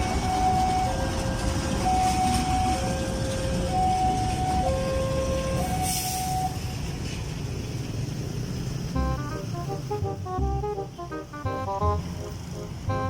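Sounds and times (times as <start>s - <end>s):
two-tone warning alarm: 0.0s - 6.6s
low rumble of vehicles: 0.0s - 13.0s.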